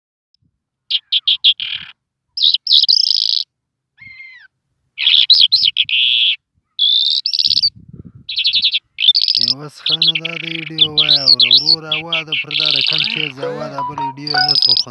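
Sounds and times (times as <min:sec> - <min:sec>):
songbird singing trills: 0:08.3 - 0:14.9.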